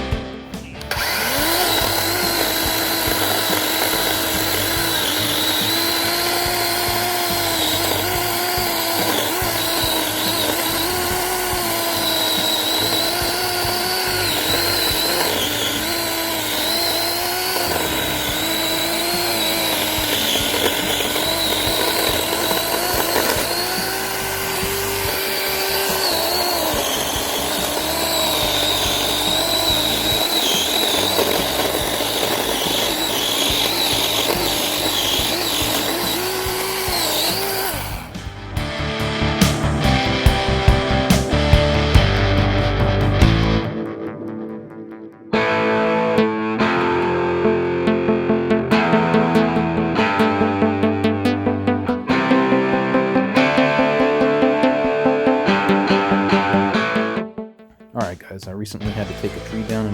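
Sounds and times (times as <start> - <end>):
electric chainsaw cutting wood: 0.0 - 43.8.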